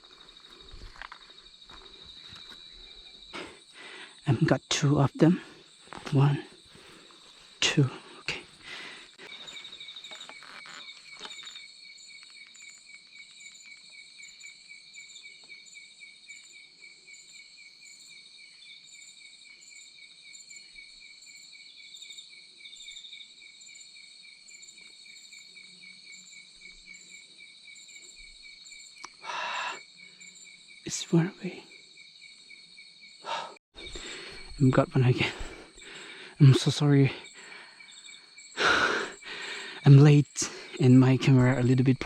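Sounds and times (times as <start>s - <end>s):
crickets chirping: 0.0s - 42.0s.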